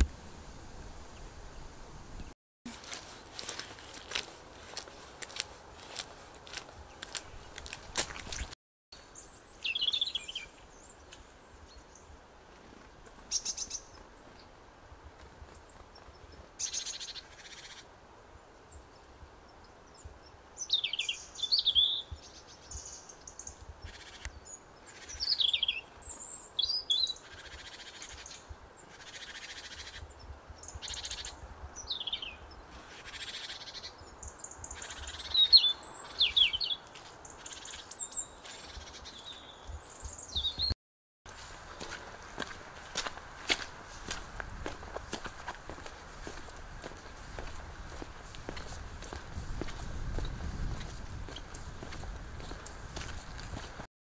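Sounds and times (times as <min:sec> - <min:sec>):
small birds chirping: 0:06.5 - 0:12.2, 0:13.1 - 0:14.6, 0:15.5 - 0:40.8, 0:44.0 - 0:53.8.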